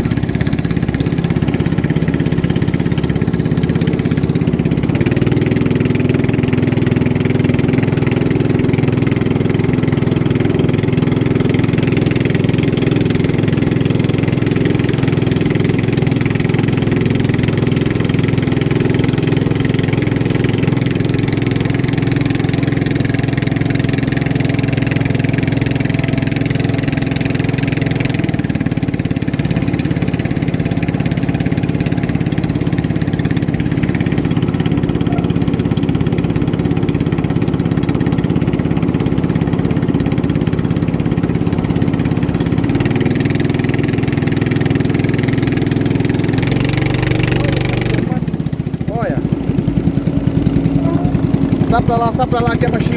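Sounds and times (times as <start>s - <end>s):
motorboat engine droning: 0.0s - 52.9s.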